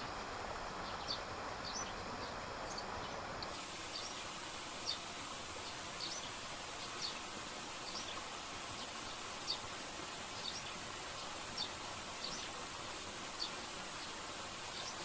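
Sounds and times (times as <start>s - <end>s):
steady hiss: 0.0s - 15.0s
small bird chirping: 6.0s - 7.2s.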